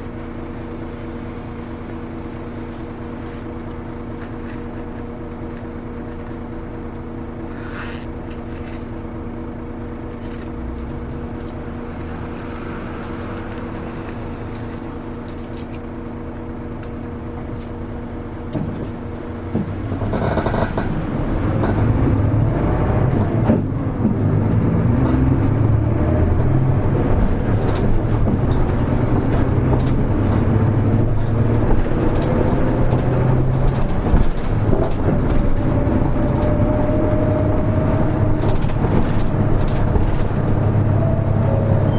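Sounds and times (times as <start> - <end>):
bus diesel engine: 0.0 - 41.9
rising whine: 21.1 - 41.9
light rattles: 27.2 - 41.0.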